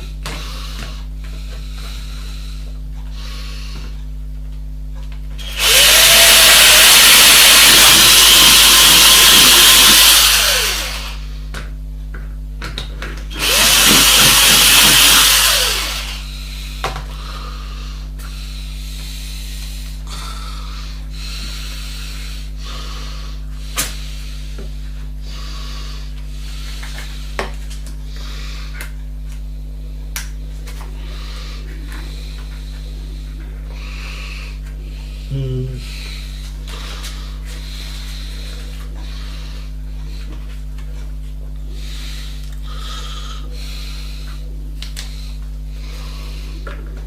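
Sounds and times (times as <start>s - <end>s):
electric drill spinning: 5.4s - 11.4s, 13.3s - 16.3s.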